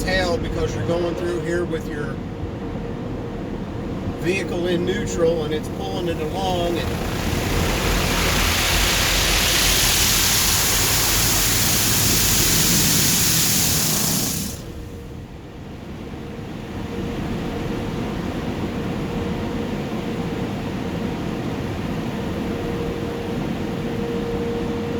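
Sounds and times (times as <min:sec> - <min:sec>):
steady hum: 0:00.0 - 0:16.6
car wash rushing hiss: 0:04.2 - 0:15.2.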